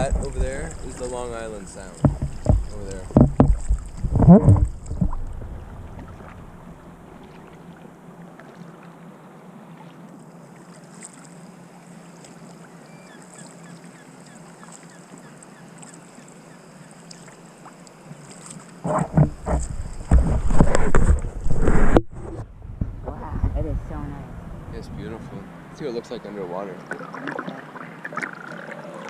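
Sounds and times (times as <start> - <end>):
low steady hum: 0.0 - 29.0
wind and water hiss: 0.0 - 29.0.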